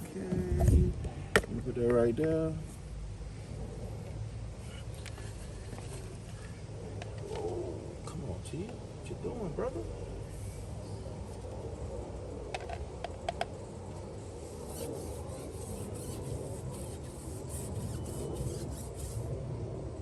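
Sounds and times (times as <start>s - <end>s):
brush rubbing rubber tire: 14.5s - 19.3s.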